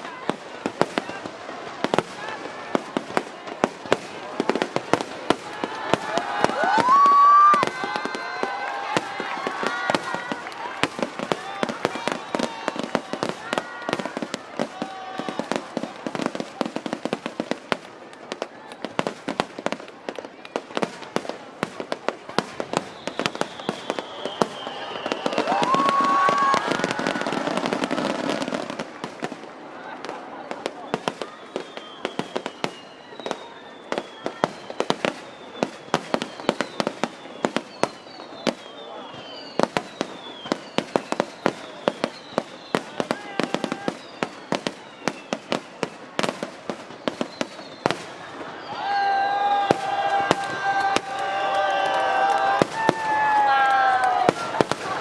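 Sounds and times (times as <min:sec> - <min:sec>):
fireworks bangs and crackles: 0:00.0 - 0:55.0
firework whistle falling: 0:22.8 - 0:28.8, 0:47.1 - 0:55.0.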